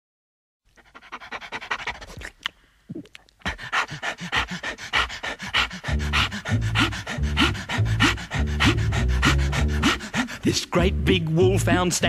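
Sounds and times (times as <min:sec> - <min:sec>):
dog panting: 0:00.7 - 0:02.4, 0:03.4 - 0:10.7.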